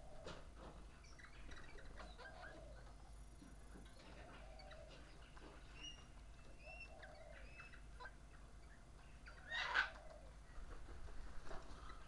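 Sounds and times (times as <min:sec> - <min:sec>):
birds whistling and chirping: 0:01.0 - 0:03.1, 0:04.0 - 0:10.6
bird squawk: 0:09.3 - 0:10.3.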